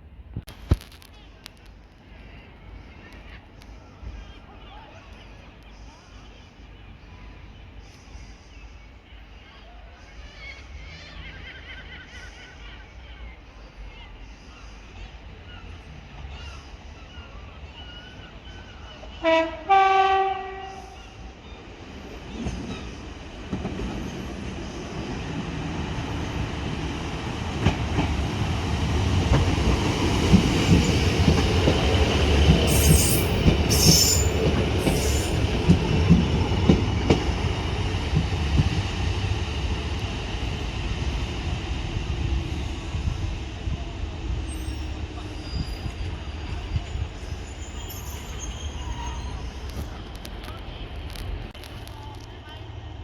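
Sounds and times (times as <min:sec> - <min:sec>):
train engine and wheels: 0:00.0 - 0:53.0
two-note train horn: 0:19.2 - 0:21.0
wheel squeals: 0:32.6 - 0:35.5, 0:44.5 - 0:50.1.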